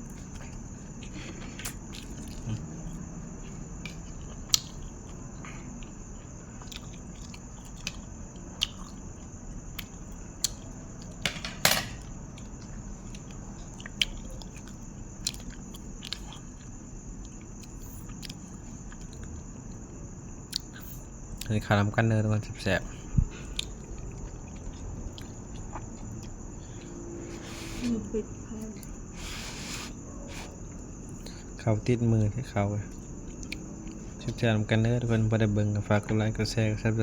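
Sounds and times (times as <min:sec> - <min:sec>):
person chewing food: 0:00.0 - 0:11.2, 0:12.0 - 0:19.8, 0:23.4 - 0:27.9, 0:28.7 - 0:31.6, 0:32.9 - 0:34.3.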